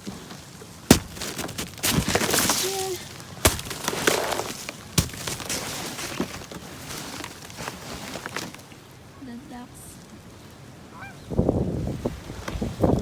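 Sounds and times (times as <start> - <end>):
footsteps crunching icy snow: 0.7 - 8.7.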